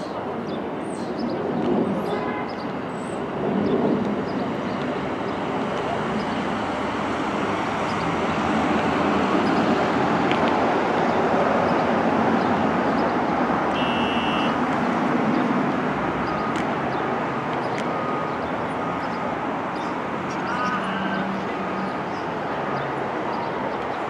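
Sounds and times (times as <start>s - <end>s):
street traffic: 0.0s - 24.0s
short high beep: 13.8s - 14.6s.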